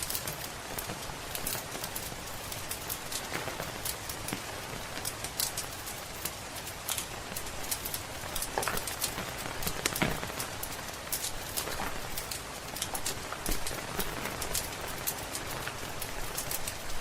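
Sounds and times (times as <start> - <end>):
steady rain hiss: 0.0 - 17.0
wood fire crackling: 0.0 - 17.0.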